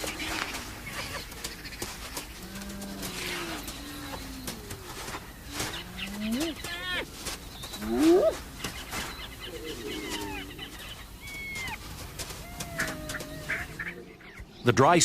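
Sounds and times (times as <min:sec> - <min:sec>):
hyena pups whining and squealing: 0:02.4 - 0:14.3.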